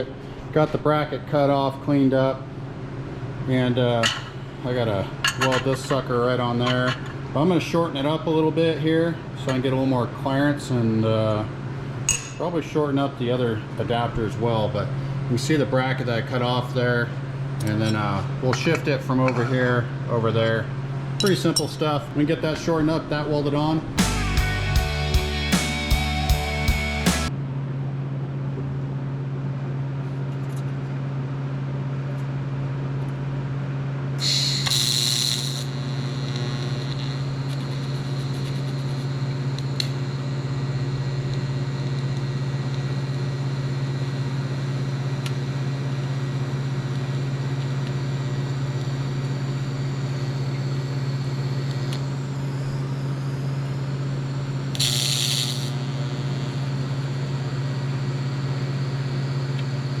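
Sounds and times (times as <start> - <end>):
machine hum: 23.8 - 27.4.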